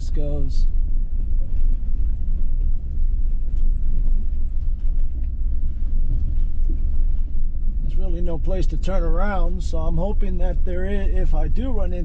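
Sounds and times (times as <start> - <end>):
truck engine and tyres rumbling: 0.0 - 12.0.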